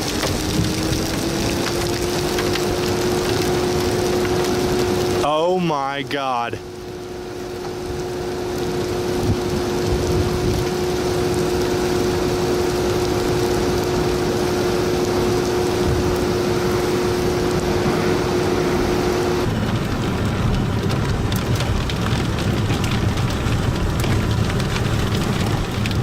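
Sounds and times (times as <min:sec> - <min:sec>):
heavy rain: 0:00.0 - 0:26.0
steady hum: 0:02.6 - 0:26.0
storm wind: 0:06.6 - 0:26.0.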